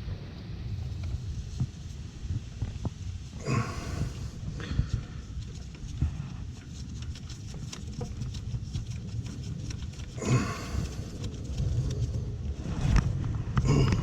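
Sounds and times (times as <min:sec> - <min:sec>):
wind rumble on microphone: 0:00.0 - 0:14.0
clatter: 0:05.0 - 0:14.0.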